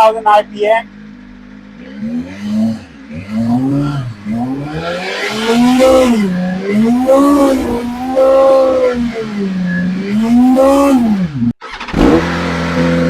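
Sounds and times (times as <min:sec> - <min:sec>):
motorcycle engine revving: 0:00.8 - 0:13.0.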